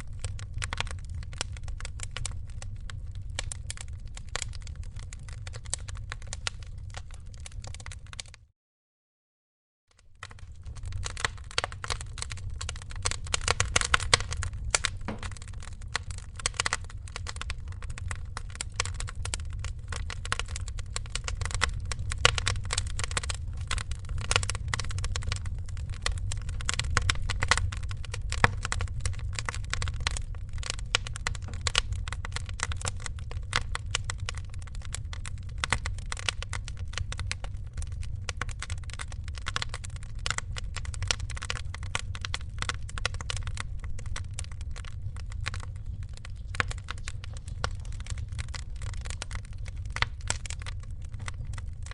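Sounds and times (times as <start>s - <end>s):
wood fire crackling: 0.0s - 8.4s, 10.0s - 51.9s
low rumble: 10.3s - 36.0s.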